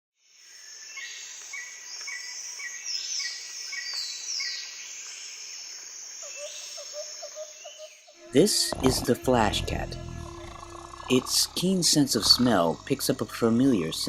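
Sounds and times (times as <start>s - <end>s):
insects buzzing: 7.2s - 14.0s.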